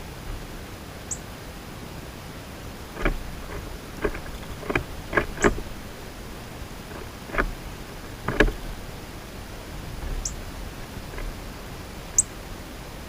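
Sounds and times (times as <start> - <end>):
birds pecking on feeder: 2.8 - 12.3.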